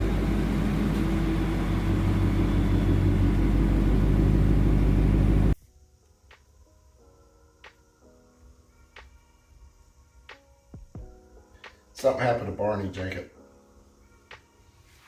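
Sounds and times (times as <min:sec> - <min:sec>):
car engine running: 0:00.0 - 0:05.6.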